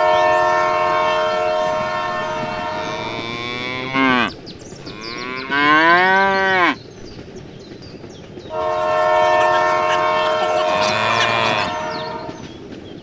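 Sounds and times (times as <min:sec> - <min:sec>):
cow mooing: 0:01.3 - 0:06.8, 0:08.6 - 0:12.0.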